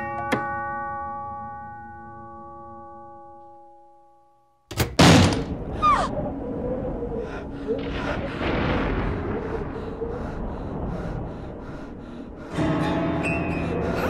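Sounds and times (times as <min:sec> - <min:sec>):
loud thud: 0:04.9 - 0:06.1.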